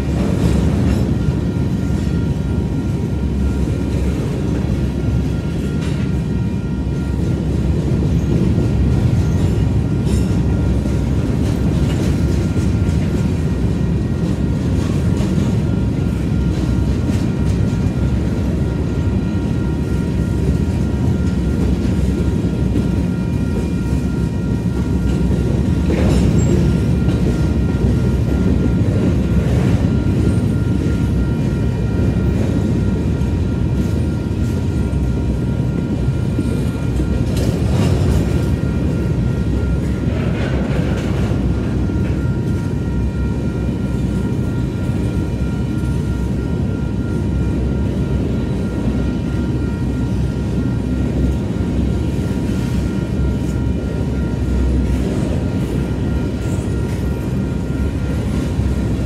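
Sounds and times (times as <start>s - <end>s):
steel wheels rumbling on rail: 0.0s - 59.0s
train rattles: 0.0s - 59.0s.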